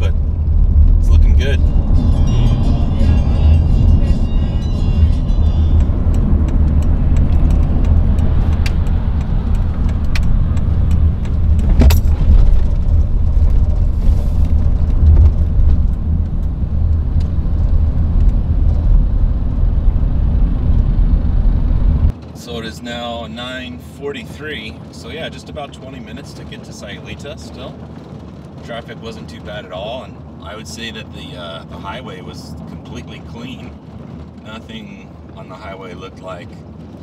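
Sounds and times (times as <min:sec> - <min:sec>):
car road and engine rumble: 0:00.0 - 0:37.0
sharp clicks: 0:05.8 - 0:12.0.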